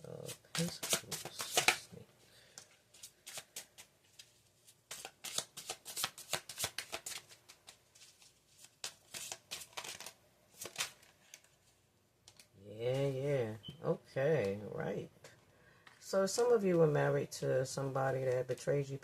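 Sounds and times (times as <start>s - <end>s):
cards being shuffled: 0.2s - 2.0s, 2.6s - 11.7s.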